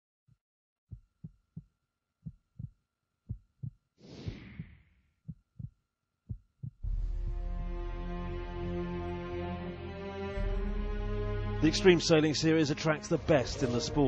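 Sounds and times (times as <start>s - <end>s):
heartbeat thumps: 0.9s - 8.3s
whoosh: 4.0s - 4.9s.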